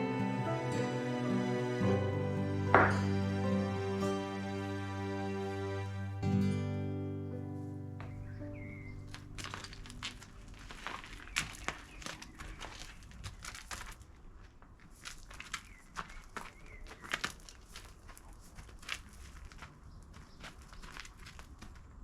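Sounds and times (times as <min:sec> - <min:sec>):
rustling: 0:08.0 - 0:21.9.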